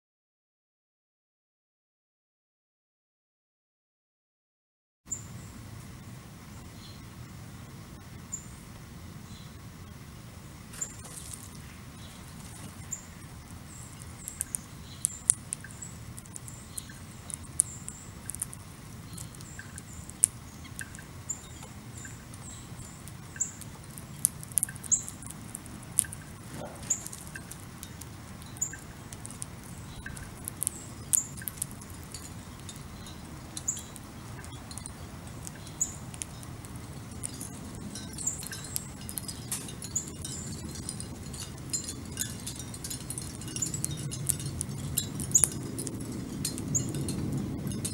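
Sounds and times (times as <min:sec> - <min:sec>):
low outdoor rumble: 0:05.1 - 0:47.9
small birds chirping: 0:05.1 - 0:47.9
sharp ticks and taps: 0:10.7 - 0:47.9.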